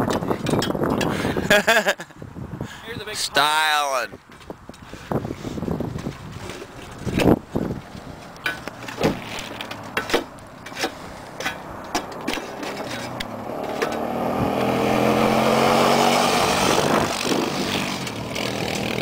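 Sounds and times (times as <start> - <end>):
vehicle engine: 6.4 - 19.0
knocks and clunks: 8.3 - 14.7.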